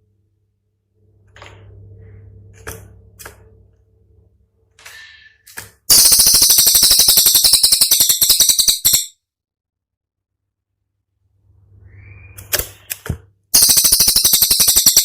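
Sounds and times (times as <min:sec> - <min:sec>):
songbird rapid rattling trill: 0:05.9 - 0:09.2, 0:13.6 - 0:15.0.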